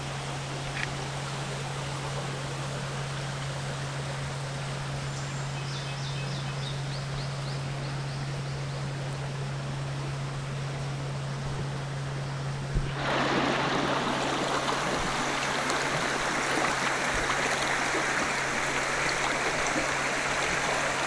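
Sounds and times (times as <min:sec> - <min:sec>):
river rushing: 0:12.9 - 0:21.0.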